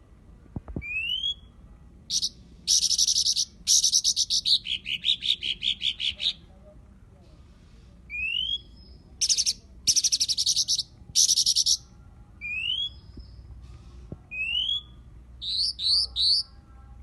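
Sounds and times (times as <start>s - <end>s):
bird whistled notes: 2.1s - 6.2s, 12.4s - 13.4s, 14.3s - 16.5s.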